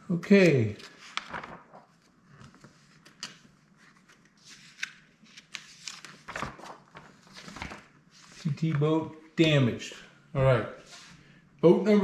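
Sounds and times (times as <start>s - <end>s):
paper and game pieces rustling: 0.7s - 3.2s, 5.7s - 8.8s.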